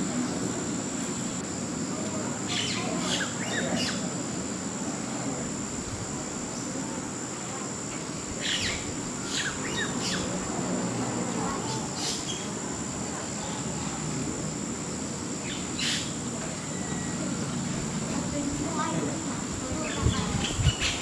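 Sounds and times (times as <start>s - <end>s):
low background murmur: 0.0s - 21.0s
small birds chirping: 2.1s - 4.1s, 7.9s - 10.5s, 11.4s - 14.0s, 15.2s - 17.8s, 19.7s - 21.0s.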